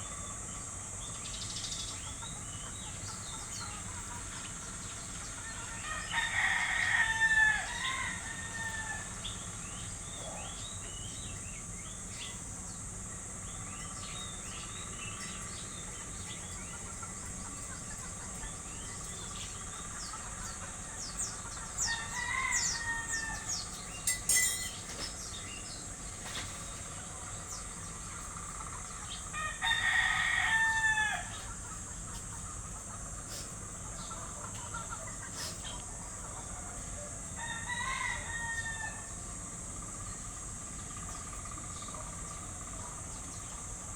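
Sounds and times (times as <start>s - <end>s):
small birds chirping: 0.0s - 6.5s, 9.1s - 30.2s, 31.2s - 37.4s
rooster crowing: 5.4s - 9.5s, 21.7s - 24.7s, 29.3s - 31.5s, 37.0s - 39.4s.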